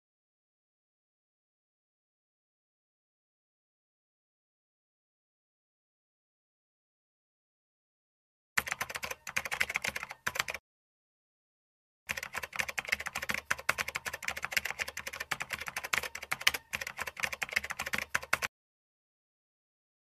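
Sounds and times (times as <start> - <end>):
rapid keyboard typing: 8.6 - 10.6, 12.1 - 18.5.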